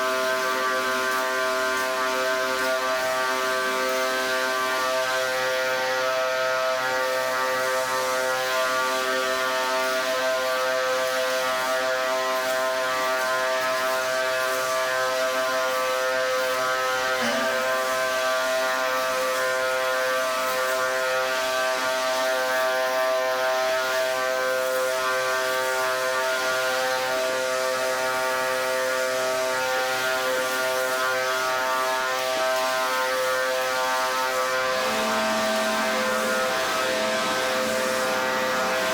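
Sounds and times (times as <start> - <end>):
high-pressure water spray hiss: 0.0 - 38.9
pressure washer motor droning: 14.4 - 19.6, 32.2 - 38.9.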